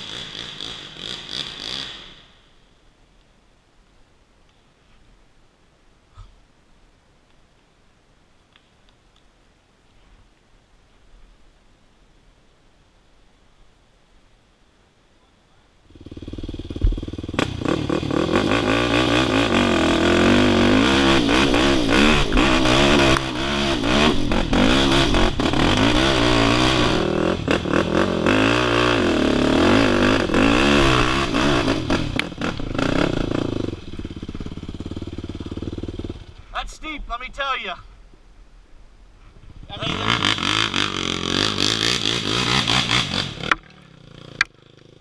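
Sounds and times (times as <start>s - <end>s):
off-road motorcycle engine revving: 0.0s - 2.4s, 15.9s - 36.6s, 39.7s - 45.0s.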